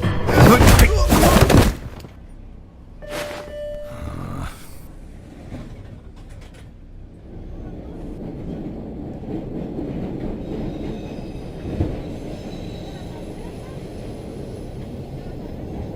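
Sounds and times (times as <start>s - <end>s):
train rumbling on rails: 5.0s - 15.9s.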